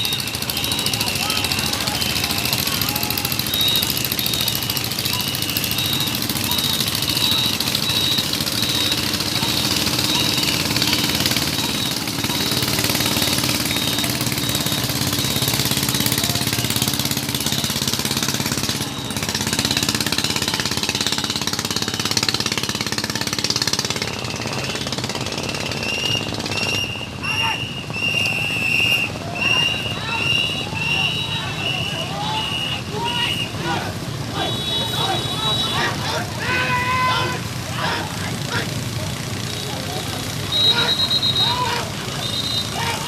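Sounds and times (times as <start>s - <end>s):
small engine running: 0.0s - 43.0s.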